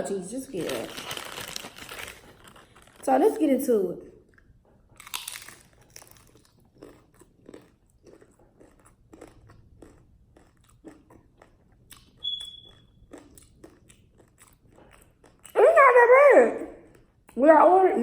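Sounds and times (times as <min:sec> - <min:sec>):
close-up chewing: 0:04.2 - 0:15.6
crunchy bite into taco shell: 0:05.0 - 0:15.5.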